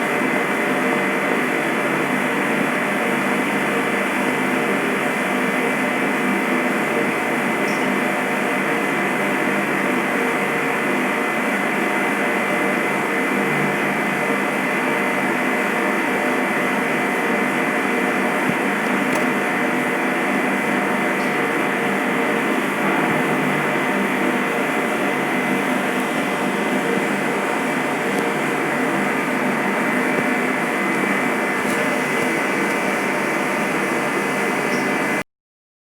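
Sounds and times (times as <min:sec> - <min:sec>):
airplane engine drone: 0:16.3 - 0:35.2.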